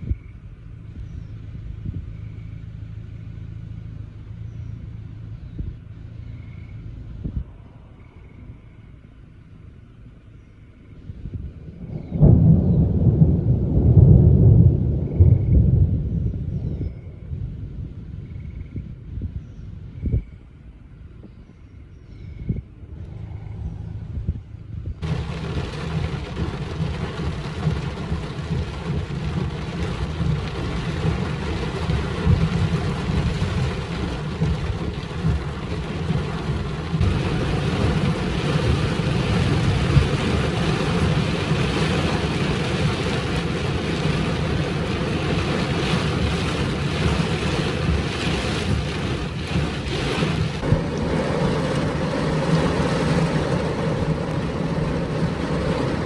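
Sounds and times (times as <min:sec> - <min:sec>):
low rumble: 0:00.0 - 0:56.0
torrential rain pouring: 0:11.7 - 0:18.1, 0:25.0 - 0:56.0.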